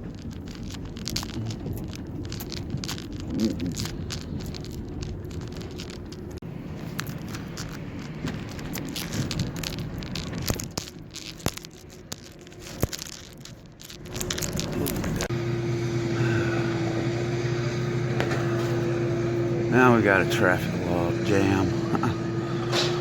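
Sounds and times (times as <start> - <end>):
vehicle rumble with crackles: 0.0 - 23.0
steady engine hum: 13.7 - 23.0.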